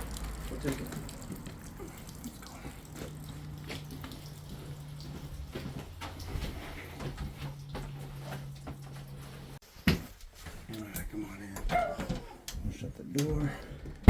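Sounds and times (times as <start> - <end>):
water running from a tap: 0.0 - 9.6.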